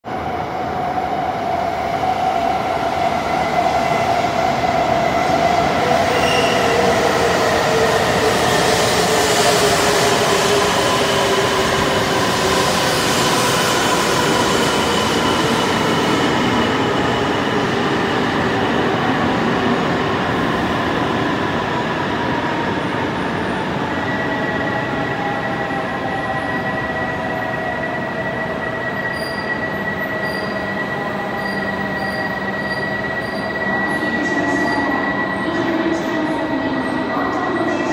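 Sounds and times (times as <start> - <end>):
train braking: 4.4 - 19.1, 23.8 - 37.9.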